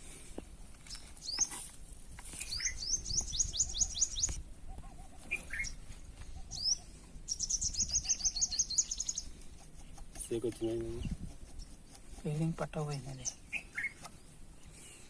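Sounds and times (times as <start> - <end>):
small bird chirping: 0.8 - 1.6, 2.4 - 12.2, 13.0 - 14.3.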